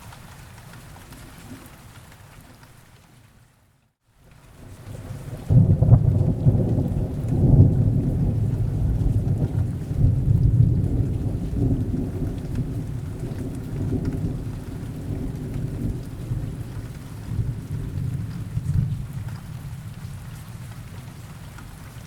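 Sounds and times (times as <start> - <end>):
steady rain: 0.0 - 22.0
rolling thunder: 5.0 - 21.1.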